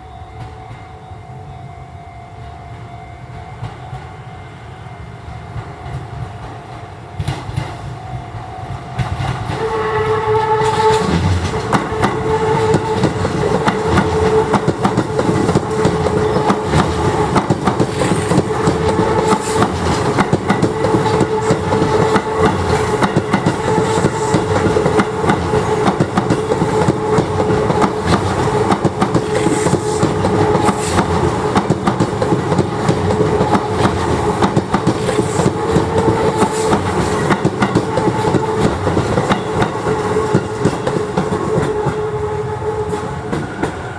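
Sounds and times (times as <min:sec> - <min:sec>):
train wheels clacking over rail joints: 0:05.5 - 0:43.9
short horn-like tone: 0:09.5 - 0:17.2.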